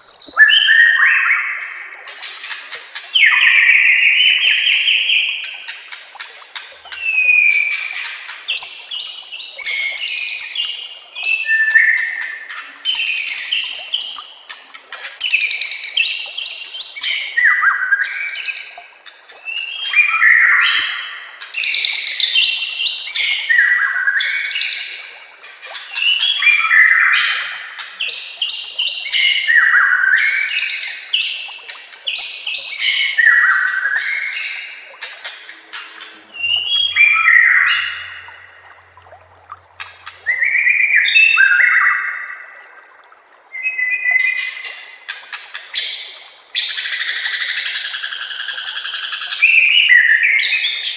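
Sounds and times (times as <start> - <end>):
bird singing whistles and trills: 0.0 - 1.8, 2.4 - 5.6, 6.9 - 14.3, 19.4 - 24.9, 26.0 - 31.5, 35.7 - 38.5, 40.2 - 42.4, 43.5 - 44.8, 45.8 - 50.9.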